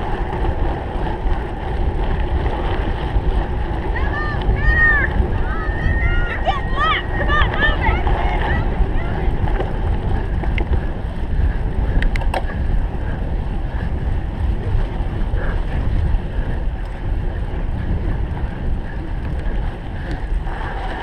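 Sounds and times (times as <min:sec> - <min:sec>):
bike rumbling over rough ground: 0:00.0 - 0:21.0
wind buffeting microphone: 0:00.0 - 0:21.0
sharp clicks: 0:12.0 - 0:12.5.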